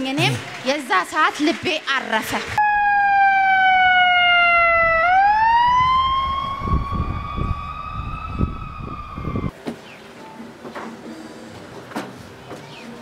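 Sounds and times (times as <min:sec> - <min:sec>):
ambulance siren wailing: 0:02.6 - 0:09.5.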